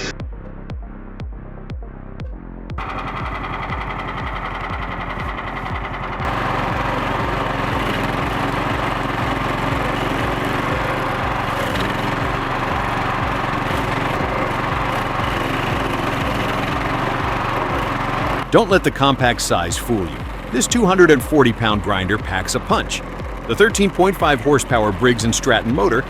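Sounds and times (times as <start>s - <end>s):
music with a steady beat: 0.0s - 26.0s
stump grinder engine running: 2.8s - 26.0s.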